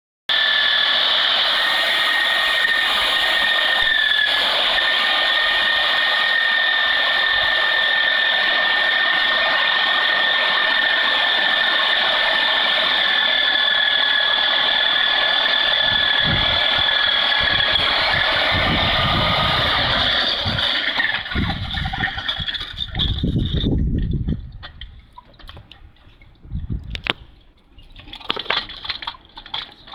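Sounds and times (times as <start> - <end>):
power tool whining: 0.3 - 23.6.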